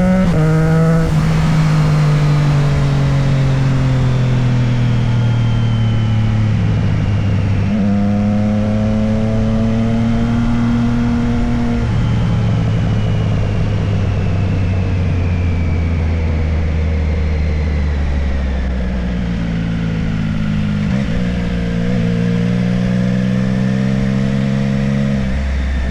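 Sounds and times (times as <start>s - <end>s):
steady rushing noise: 0.0s - 7.3s
motorcycle engine running: 0.0s - 25.9s.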